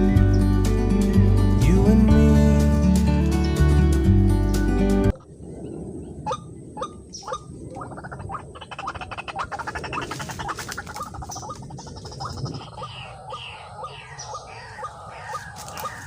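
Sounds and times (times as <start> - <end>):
waterhen calling: 5.1 - 16.0.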